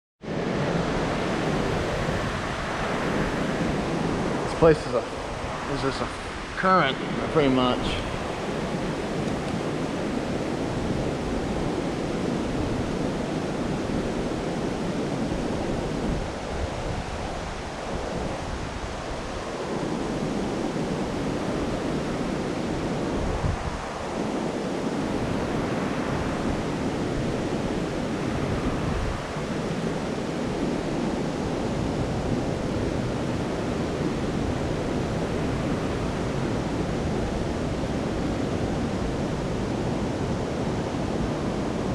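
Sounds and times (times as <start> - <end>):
floodwater rushing: 0.3 - 32.2.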